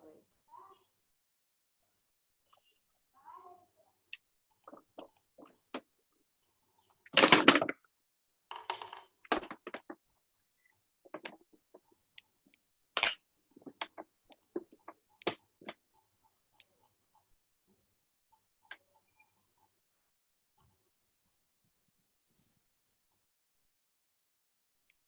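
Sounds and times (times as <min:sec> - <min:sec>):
clicks and knocks: 0:08.5 - 0:10.0.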